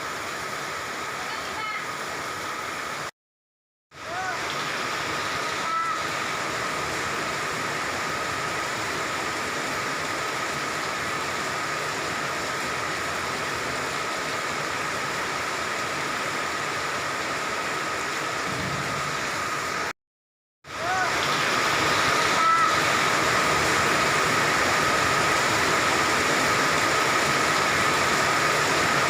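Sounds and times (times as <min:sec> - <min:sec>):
rain falling: 0:00.0 - 0:03.1, 0:04.0 - 0:20.0, 0:20.7 - 0:29.0.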